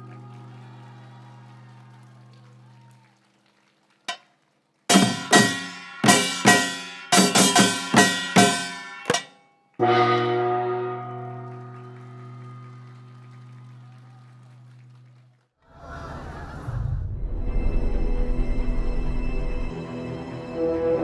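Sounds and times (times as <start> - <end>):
band chord hits with cymbals: 4.9 - 10.7.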